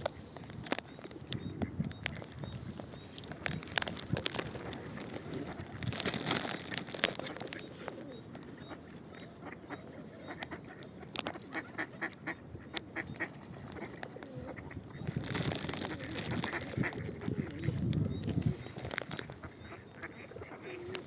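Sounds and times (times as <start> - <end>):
ducks quacking: 9.4 - 15.2, 15.8 - 17.8, 19.2 - 21.0.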